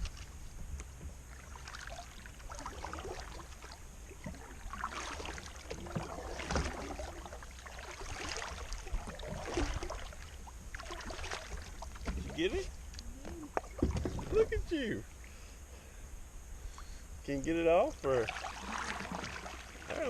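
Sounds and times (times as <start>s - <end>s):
paddle splashing water: 0.0s - 15.5s, 17.8s - 20.0s
steady low hum: 0.0s - 20.0s
paddle knocking against hull: 4.2s - 14.6s.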